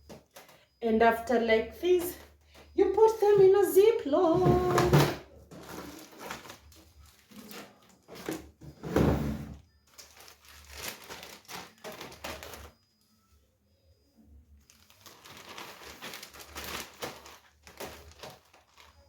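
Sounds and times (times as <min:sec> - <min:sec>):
plastic bag rustling: 0:01.8 - 0:08.6, 0:09.5 - 0:12.8, 0:14.6 - 0:19.0.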